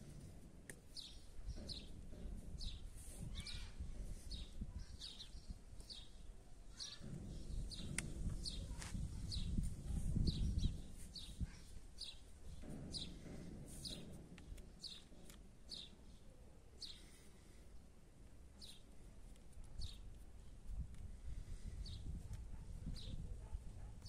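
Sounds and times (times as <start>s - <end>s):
small bird chirping: 0.2s - 17.5s, 18.5s - 19.0s, 19.7s - 20.8s
low rumbling noise: 6.9s - 15.6s.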